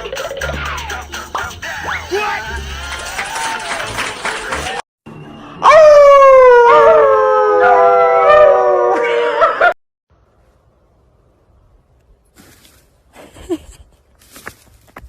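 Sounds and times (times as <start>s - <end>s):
dog howling: 5.6s - 9.7s.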